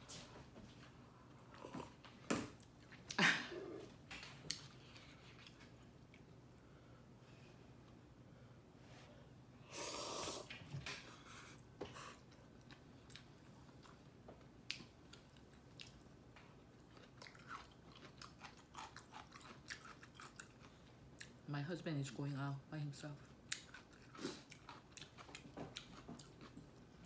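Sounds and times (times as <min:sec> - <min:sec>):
person chewing with wet smacks: 0:01.5 - 0:06.3, 0:12.2 - 0:21.4, 0:23.2 - 0:27.0.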